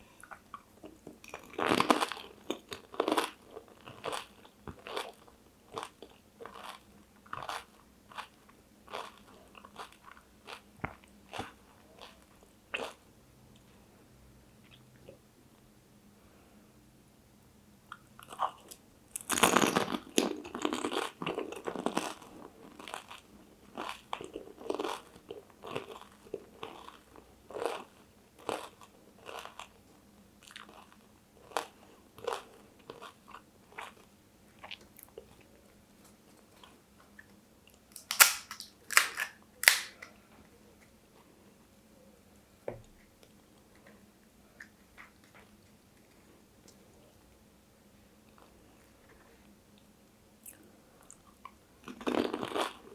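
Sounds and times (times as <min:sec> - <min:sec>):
loud crunching of crisp food: 0:01.3 - 0:13.0, 0:18.2 - 0:29.8, 0:37.9 - 0:40.1, 0:51.8 - 0:52.9.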